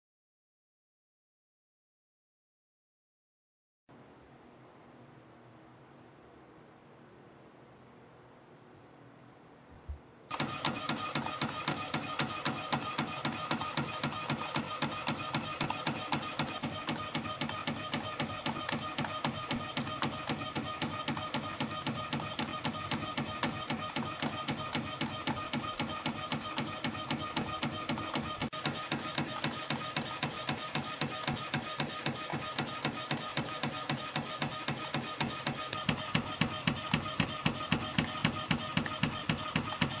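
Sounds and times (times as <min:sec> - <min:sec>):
sharp machine clacks: 0:10.3 - 0:40.0.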